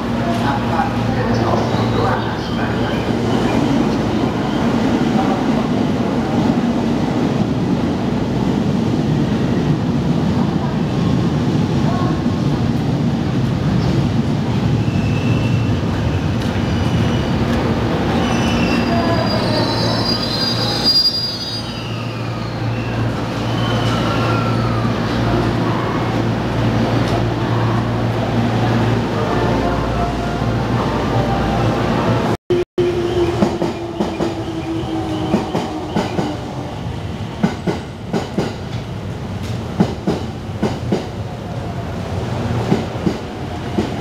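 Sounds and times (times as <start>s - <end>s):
high squeal: 18.2s - 25.0s.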